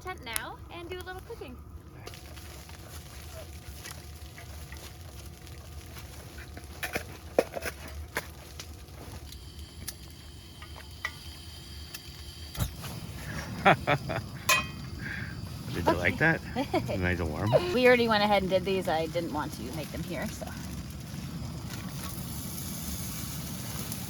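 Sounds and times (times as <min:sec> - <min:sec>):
low steady hum: 0:00.0 - 0:24.0
sandwiches frying in a pan: 0:02.0 - 0:24.0
cookware clicking and knocking: 0:14.5 - 0:14.8
person speaking: 0:15.7 - 0:20.2.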